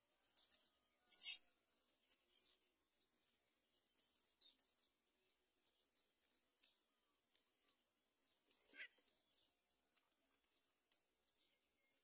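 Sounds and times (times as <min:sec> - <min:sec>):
faint bird chirps: 0:00.3 - 0:03.4.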